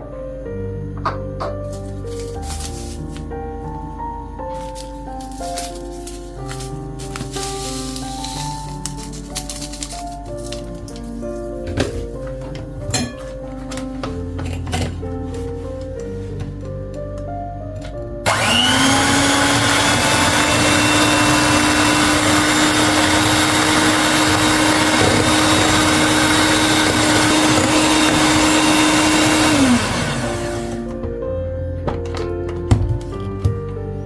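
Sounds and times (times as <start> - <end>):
electric mixer motor whine: 18.2 - 30.8.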